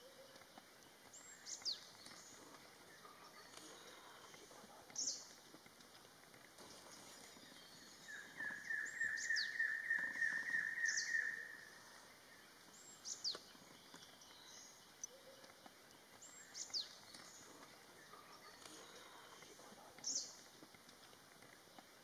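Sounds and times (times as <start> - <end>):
faint steady hiss: 0.0 - 22.0
birds calling quick repeated notes: 6.6 - 11.8.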